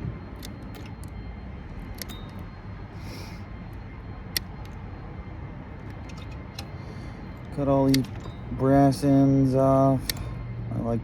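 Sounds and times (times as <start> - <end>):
wire cutters snipping: 7.5 - 9.0, 10.0 - 10.4.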